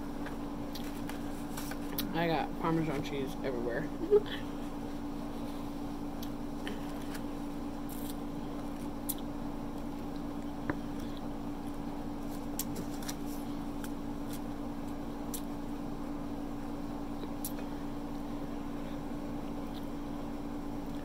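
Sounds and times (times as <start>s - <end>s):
steady low hum: 0.0s - 21.0s
person chewing food: 6.2s - 11.8s.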